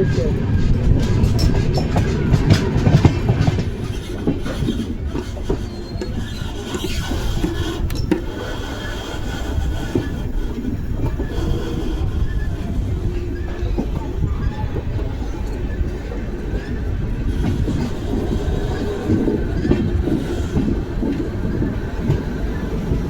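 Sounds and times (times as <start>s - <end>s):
clicks and clatter of train: 0.0s - 23.0s
train wheels rumbling on rail: 0.0s - 23.0s.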